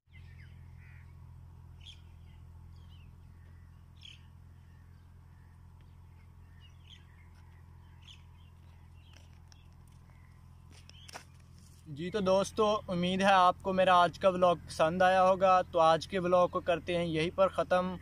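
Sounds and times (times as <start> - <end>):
faint bird chirps: 0.1 - 11.2
steady low hum: 0.1 - 18.0.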